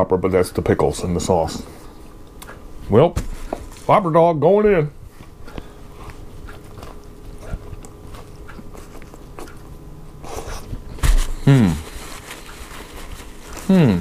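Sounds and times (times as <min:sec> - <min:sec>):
person chewing food: 0:05.1 - 0:13.7
brief vocal sound: 0:11.4 - 0:11.9.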